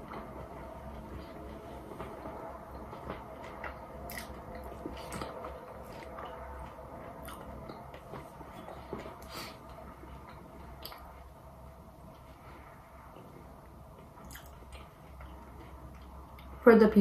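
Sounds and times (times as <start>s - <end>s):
steady low hum: 0.0s - 17.0s
person chewing: 4.1s - 6.3s, 7.2s - 7.8s, 14.2s - 15.3s.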